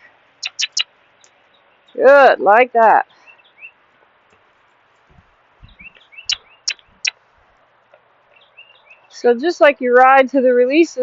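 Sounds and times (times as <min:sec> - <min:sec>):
small birds chirping: 0:00.0 - 0:02.3, 0:03.0 - 0:09.6
sharp clicks: 0:00.4 - 0:01.4, 0:05.7 - 0:07.2
faint low thuds: 0:04.3 - 0:06.1.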